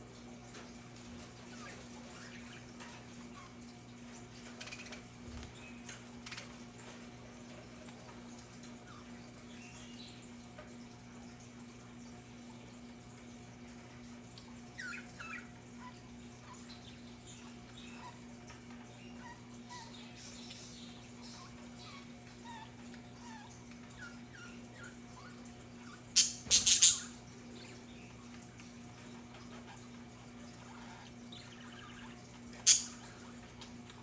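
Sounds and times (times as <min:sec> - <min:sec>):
faint steady hum: 0:00.0 - 0:34.0
budgerigars chirping: 0:26.2 - 0:27.2, 0:30.9 - 0:33.1.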